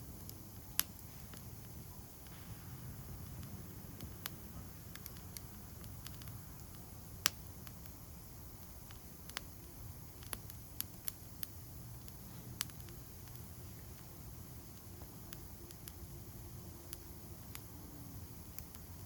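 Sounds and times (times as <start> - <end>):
bonfire crackling and popping: 0.0 - 19.0
low steady rumble: 0.0 - 19.0.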